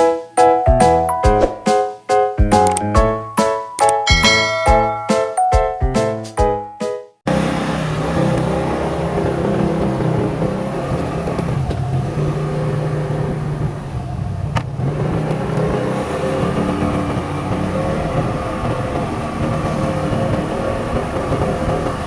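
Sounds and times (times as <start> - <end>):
sharp click: 2.6 - 2.9
road and wind noise: 7.3 - 22.0
vehicle engine running: 7.3 - 22.0.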